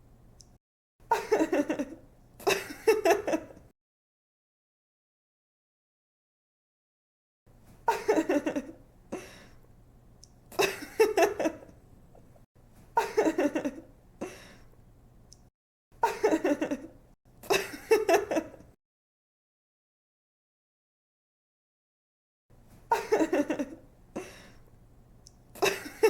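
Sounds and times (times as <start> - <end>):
woman giggling: 1.1 - 3.6, 7.9 - 8.8, 10.6 - 11.7, 13.0 - 13.9, 16.0 - 18.7, 22.9 - 24.4, 25.6 - 26.0.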